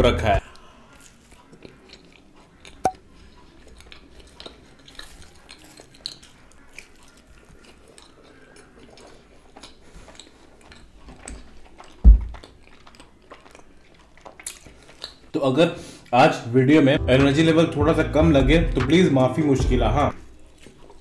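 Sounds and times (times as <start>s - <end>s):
chewing with wet mouth noises: 0.4s - 16.2s, 20.1s - 21.0s
loud dull thump: 12.1s - 12.4s.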